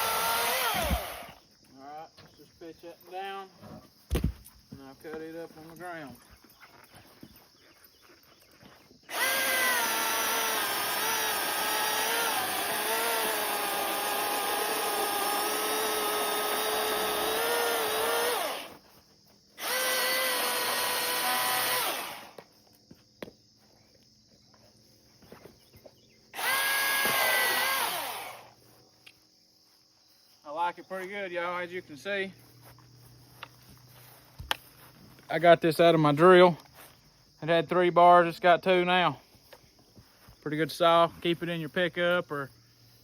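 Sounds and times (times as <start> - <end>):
battery chainsaw cutting log: 0.0 - 1.4, 9.1 - 18.8, 19.6 - 22.4, 26.4 - 28.5
crickets chirping: 0.0 - 43.0.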